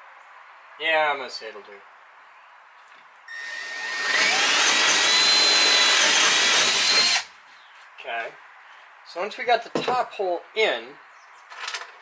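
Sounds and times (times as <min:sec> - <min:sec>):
power drill boring through wood: 0:03.3 - 0:07.3.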